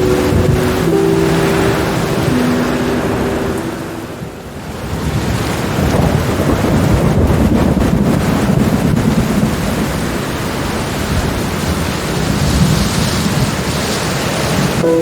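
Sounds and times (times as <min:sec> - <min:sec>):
soft held musical notes: 0:00.0 - 0:04.8
steady rain: 0:00.0 - 0:15.0
thunder rumbling low: 0:04.3 - 0:13.7.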